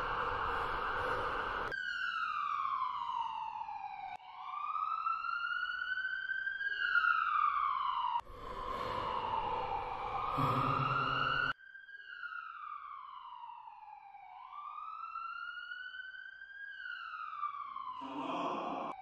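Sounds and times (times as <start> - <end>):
siren wailing: 0.0 - 19.0.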